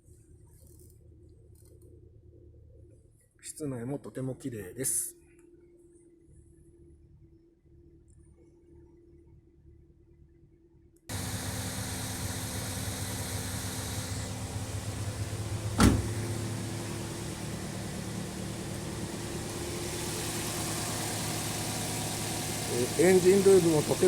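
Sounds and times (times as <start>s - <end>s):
car engine idling: 11.1s - 24.0s
sharp knock: 15.8s - 16.2s.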